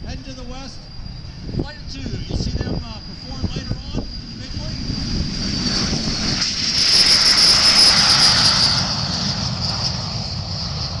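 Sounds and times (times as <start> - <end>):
jet engines whining and rumbling: 0.0 - 11.0.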